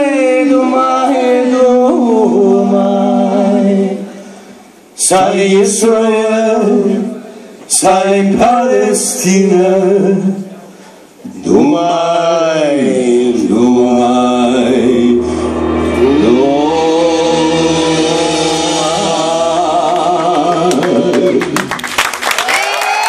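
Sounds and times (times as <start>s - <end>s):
men singing with band: 11.5s - 21.6s
audience clapping and cheering: 19.9s - 23.0s.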